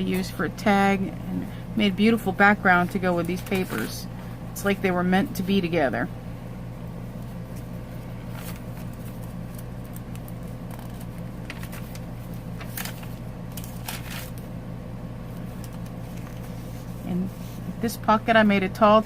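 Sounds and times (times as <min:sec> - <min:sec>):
steady low hum: 0:00.0 - 0:19.0
paper rustling: 0:03.2 - 0:04.0, 0:07.5 - 0:14.5, 0:15.3 - 0:17.6.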